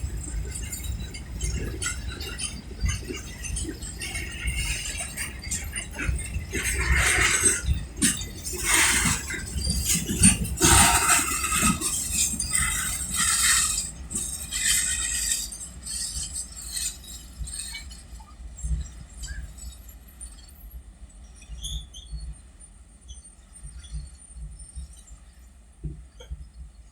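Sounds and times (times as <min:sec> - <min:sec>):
train wagons clanking on rails: 0:00.0 - 0:20.6
train rumble: 0:00.0 - 0:20.7.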